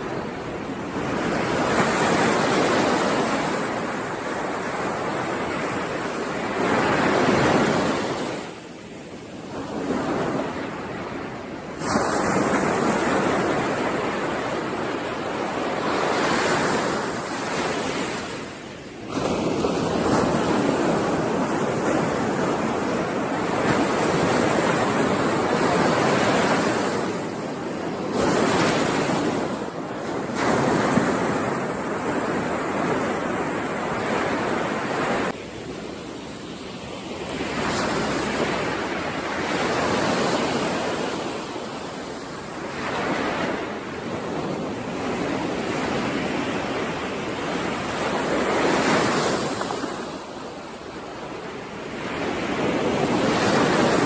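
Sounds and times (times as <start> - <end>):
ocean surf on shore: 0.0 - 54.0
waves breaking: 0.0 - 54.0.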